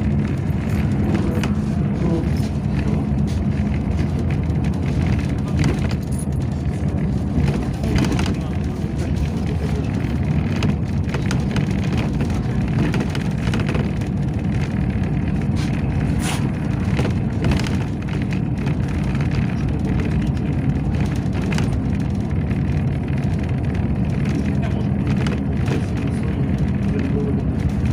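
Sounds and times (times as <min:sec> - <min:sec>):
bus engine and road rumble: 0:00.0 - 0:27.9
short rattles and clicks: 0:00.0 - 0:27.9.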